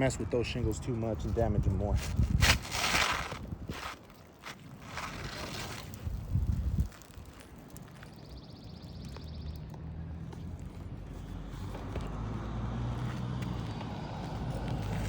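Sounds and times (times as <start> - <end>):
shingle scraping and clicking: 2.0 - 6.2.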